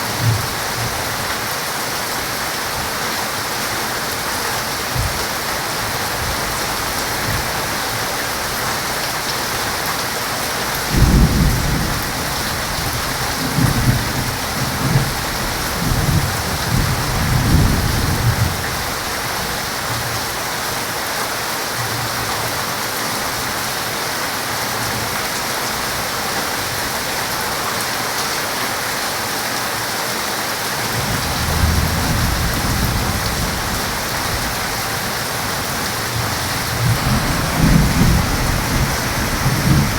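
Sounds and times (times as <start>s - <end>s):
heavy rain falling: 0.0s - 39.9s
thunder rumbling: 10.8s - 18.8s, 30.9s - 39.9s.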